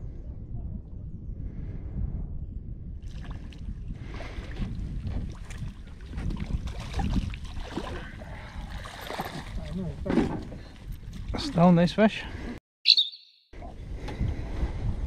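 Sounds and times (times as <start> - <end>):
wind buffeting microphone: 0.0 - 12.5, 13.6 - 15.0
water splashing against boat: 3.0 - 11.7.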